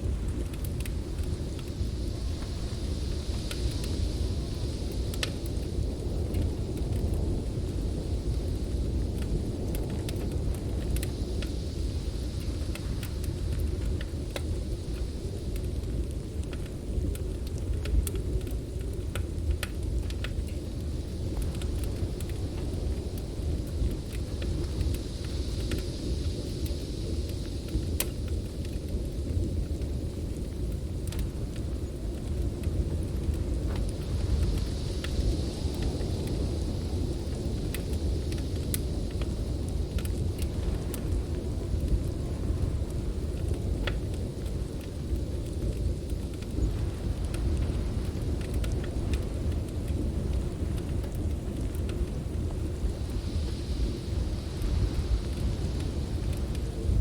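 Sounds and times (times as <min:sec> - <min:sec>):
wind rumbling: 0:00.0 - 0:57.0
wood fire crackling: 0:00.0 - 0:57.0.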